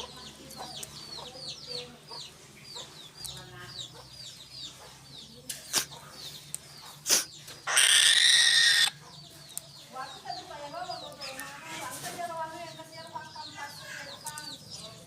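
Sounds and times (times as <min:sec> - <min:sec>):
bird harsh screech: 0:07.1 - 0:09.0.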